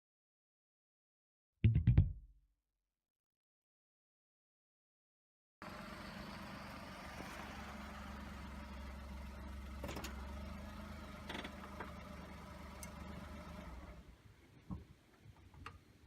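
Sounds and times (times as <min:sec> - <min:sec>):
vehicle engine humming: 0:05.6 - 0:14.1.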